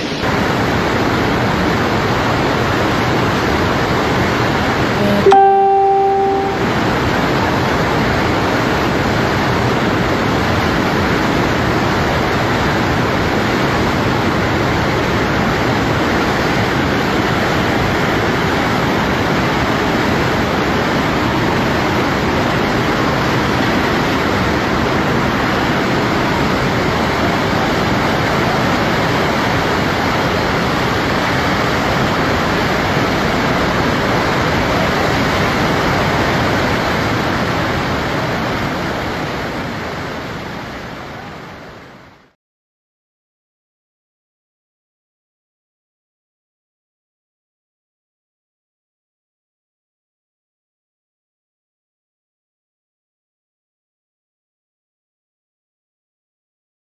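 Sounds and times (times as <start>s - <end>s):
heavy rain pouring: 0.0s - 4.9s, 7.1s - 41.8s.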